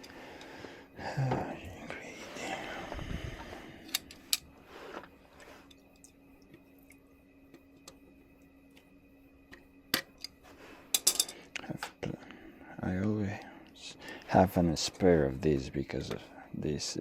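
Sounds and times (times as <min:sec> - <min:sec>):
faint steady hum: 0:00.0 - 0:17.0
small parts clicking and tapping: 0:03.8 - 0:04.4, 0:09.5 - 0:12.0.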